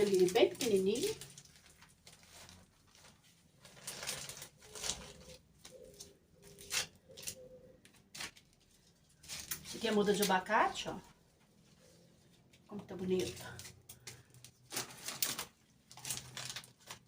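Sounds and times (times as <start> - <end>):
dove cooing: 4.7 - 7.9.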